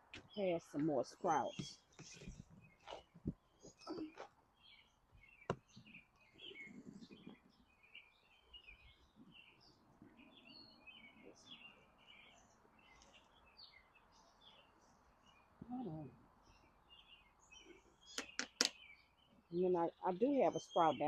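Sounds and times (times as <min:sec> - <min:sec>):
faint birds chirping: 0:00.0 - 0:21.0
soft low rustle: 0:05.8 - 0:07.7
sharp clicks: 0:18.1 - 0:18.8.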